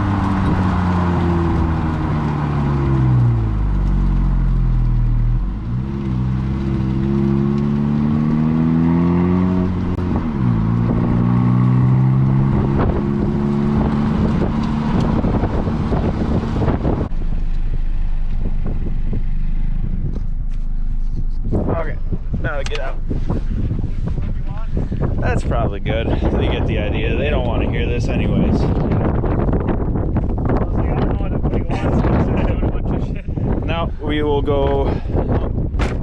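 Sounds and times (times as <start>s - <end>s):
car engine accelerating through gears: 0.0s - 25.3s.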